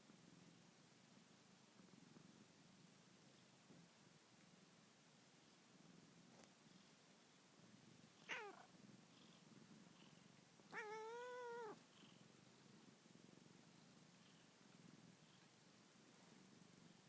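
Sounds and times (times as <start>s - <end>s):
cat purring: 0.0s - 17.0s
cat meowing: 8.3s - 8.6s, 10.7s - 11.8s.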